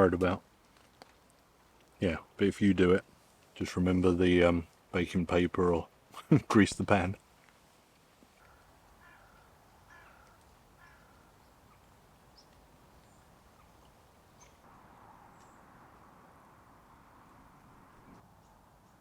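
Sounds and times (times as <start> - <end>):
distant bird calls: 8.3 - 16.2.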